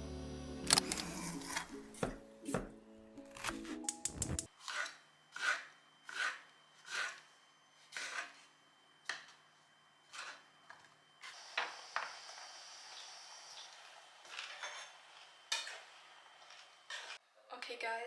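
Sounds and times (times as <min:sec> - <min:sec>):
knife scraping on cutting board: 0:04.5 - 0:09.4, 0:10.0 - 0:10.9
steady hiss: 0:11.2 - 0:17.2.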